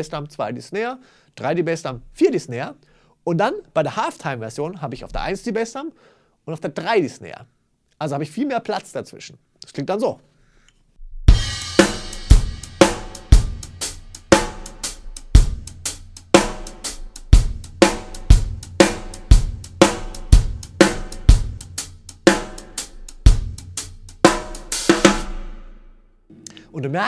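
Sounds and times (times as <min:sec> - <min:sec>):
drum kit playing shuffle groove: 0:11.3 - 0:27.0.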